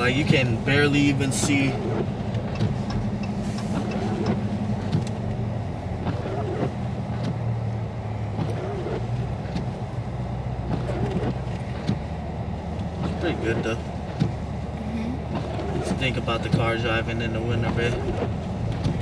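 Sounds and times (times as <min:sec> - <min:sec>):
car engine droning in cabin: 0:00.0 - 0:19.0
road noise: 0:00.0 - 0:19.0.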